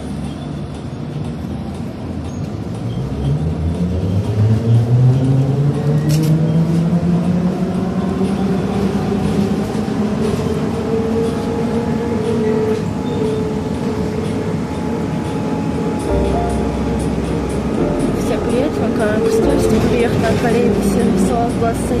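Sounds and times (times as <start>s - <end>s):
road and cabin rumble: 16.0s - 22.0s.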